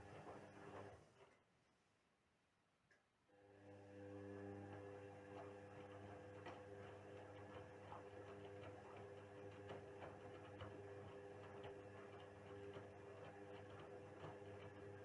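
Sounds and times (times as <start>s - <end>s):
washing machine running: 5.4s - 15.0s.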